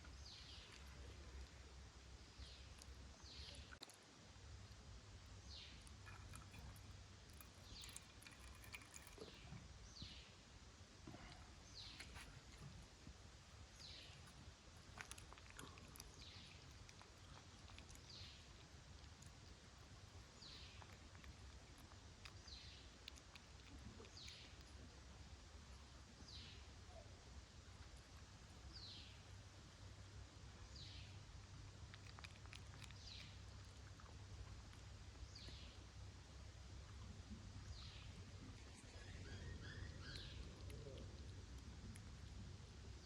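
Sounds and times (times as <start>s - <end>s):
low steady hum: 0.0s - 43.0s
small animal squeaking: 38.6s - 40.9s.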